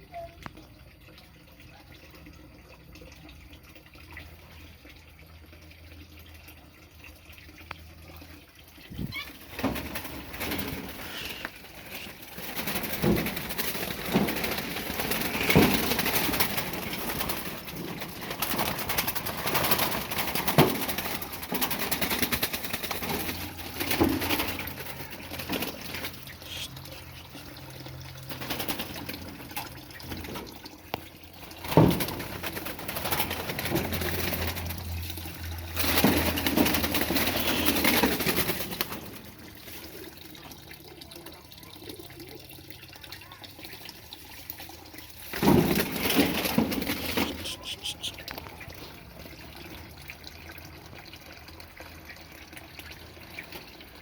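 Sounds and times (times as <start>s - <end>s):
birds fluttering and rustling: 8.3s - 40.5s, 43.3s - 49.8s.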